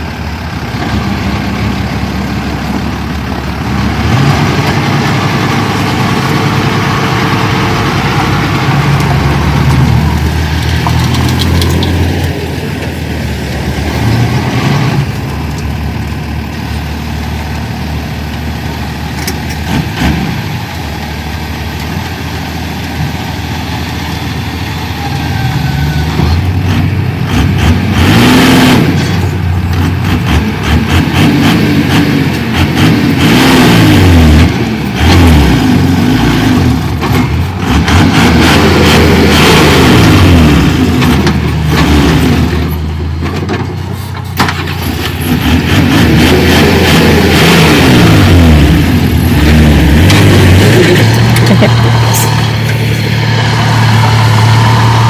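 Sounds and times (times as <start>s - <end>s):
heavy diesel engine working: 0.0s - 55.0s
knocks and rattles: 9.0s - 14.4s.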